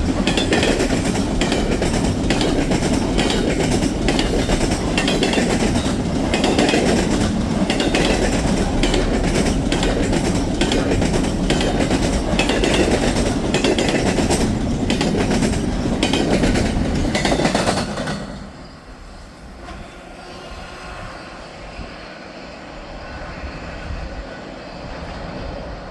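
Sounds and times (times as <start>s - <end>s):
wheels clicking over rail joints: 0.0s - 18.6s
freight train cars rolling: 0.0s - 25.8s.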